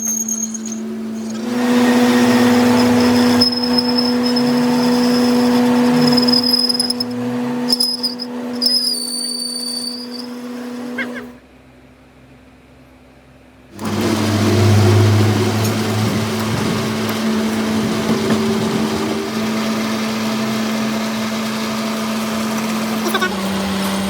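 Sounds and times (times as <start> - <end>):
harsh machining noise: 0.0 - 11.4, 13.8 - 24.0
high squeals of lathe cutting: 0.0 - 11.4
metal lathe motor hum: 0.5 - 11.4, 13.8 - 24.0.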